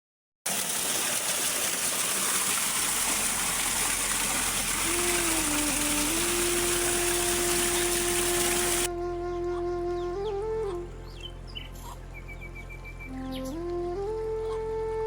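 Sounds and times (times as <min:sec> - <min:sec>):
steady rain: 0:01.2 - 0:08.9
flute long held note: 0:04.8 - 0:11.5, 0:12.9 - 0:15.0.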